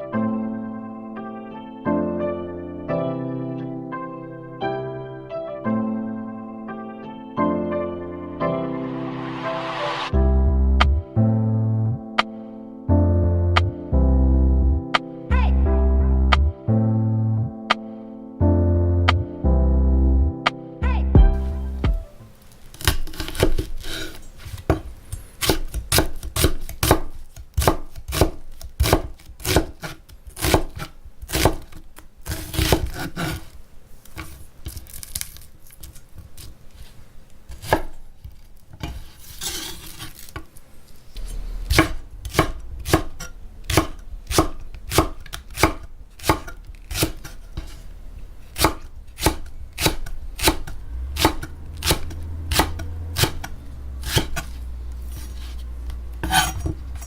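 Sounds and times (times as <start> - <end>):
knife chopping on cutting board: 22.8 - 24.8, 25.4 - 33.4, 37.5 - 38.0, 41.7 - 47.8, 48.5 - 54.5, 56.2 - 57.0
knife scraping board: 22.8 - 24.8, 32.2 - 33.6, 38.8 - 40.5, 45.6 - 47.8, 48.5 - 57.0.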